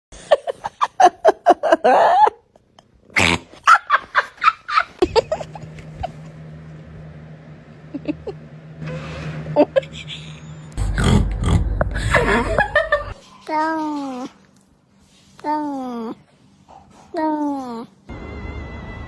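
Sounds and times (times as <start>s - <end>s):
steady low hum: 4.7s - 13.2s.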